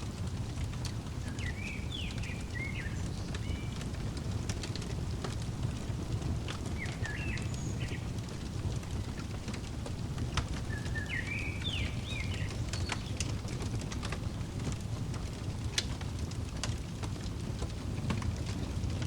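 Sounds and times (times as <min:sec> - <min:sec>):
wood fire crackling: 0:00.0 - 0:19.0
bird chirping: 0:01.2 - 0:03.9, 0:06.6 - 0:09.3, 0:10.5 - 0:13.3.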